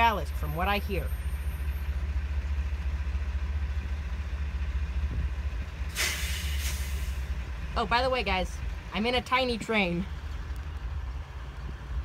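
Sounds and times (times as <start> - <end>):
locomotive engine drone: 0.0 - 12.0
short loud hiss: 5.9 - 7.2.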